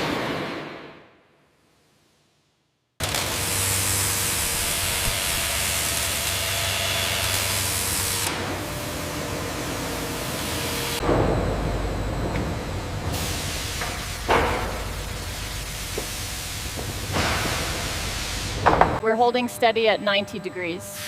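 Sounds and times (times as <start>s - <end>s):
deep rumble: 11.0s - 19.0s
machinery hissing spray: 13.1s - 18.7s.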